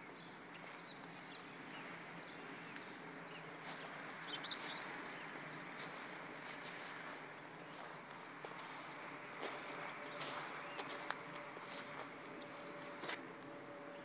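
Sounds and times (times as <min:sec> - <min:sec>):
small bird chirping: 0:00.0 - 0:06.0
outdoor background noise: 0:00.0 - 0:14.0.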